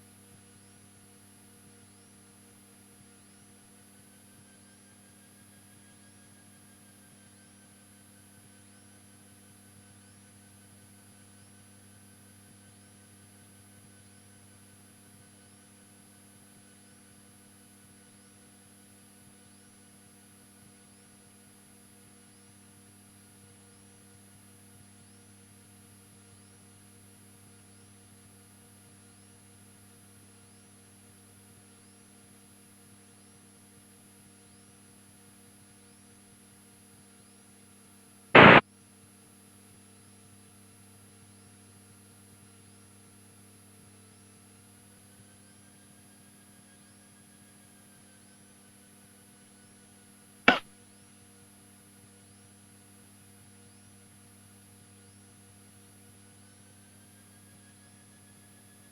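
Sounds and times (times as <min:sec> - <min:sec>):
faint electrical hum: 0:38.4 - 0:38.6
loud burst of noise: 0:38.4 - 0:38.6.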